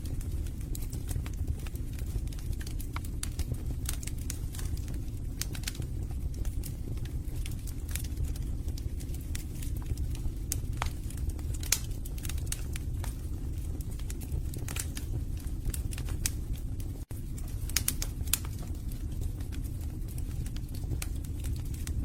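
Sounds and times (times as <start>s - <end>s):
fire flames rumbling: 0.0s - 22.0s
logs crackling and popping: 0.0s - 22.0s.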